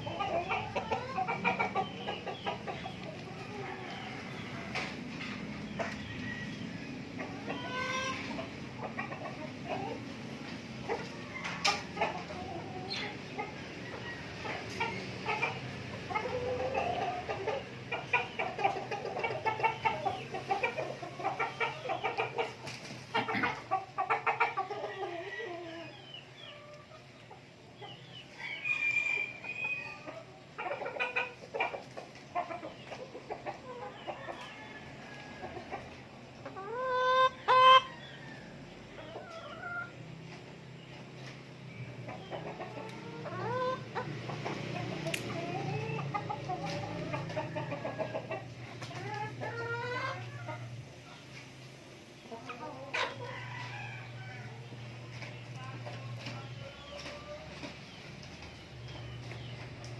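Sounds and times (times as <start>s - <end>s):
loud chicken calls: 0.0s - 27.1s, 28.0s - 40.2s
chickens clucking: 0.0s - 59.9s.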